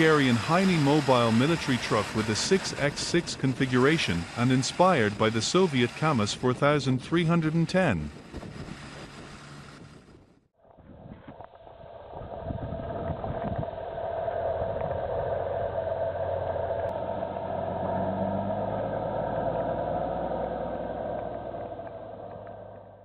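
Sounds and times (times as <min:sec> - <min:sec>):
heavy vehicle engine running: 0:00.0 - 0:10.5, 0:13.1 - 0:23.0.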